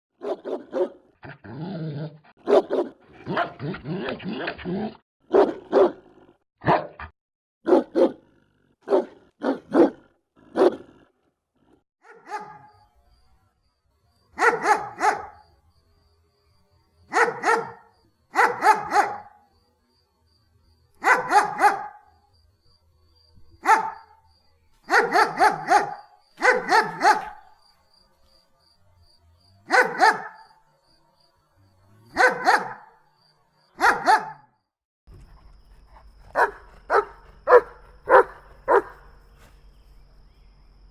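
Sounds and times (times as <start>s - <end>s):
dog barking: 0.2s - 1.4s, 2.4s - 4.0s, 5.3s - 11.0s, 12.0s - 12.8s, 14.4s - 15.4s, 17.1s - 19.4s, 21.0s - 22.1s, 23.6s - 24.2s, 24.9s - 27.6s, 29.7s - 30.6s, 32.1s - 33.0s, 33.8s - 34.6s, 36.3s - 39.2s.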